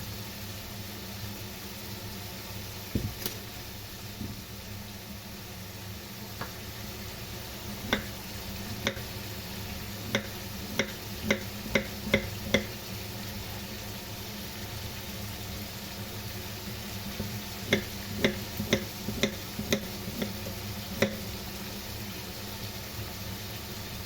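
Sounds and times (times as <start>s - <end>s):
food sizzling in a frying pan: 0.0s - 24.0s
utensil knocking against pan: 7.9s - 8.2s, 8.8s - 9.2s, 10.1s - 12.8s, 17.2s - 21.3s.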